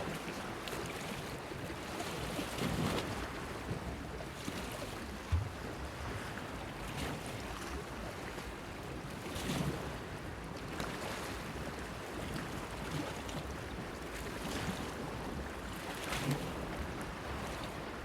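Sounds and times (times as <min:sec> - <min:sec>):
waves lapping against pier: 0:00.0 - 0:18.0.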